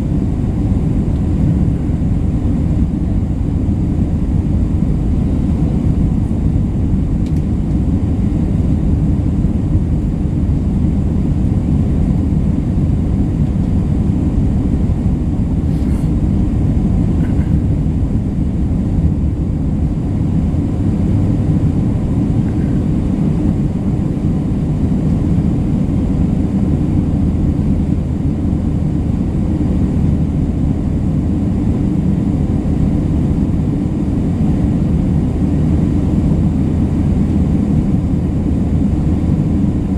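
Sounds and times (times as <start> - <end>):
airplane cabin drone: 0.0 - 39.9.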